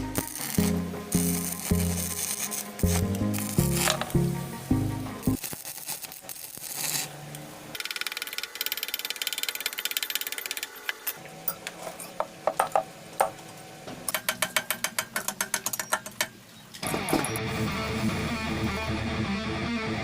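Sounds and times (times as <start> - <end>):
music: 0.0 - 5.4, 16.8 - 20.0
rapid mechanical clicking: 7.8 - 11.1.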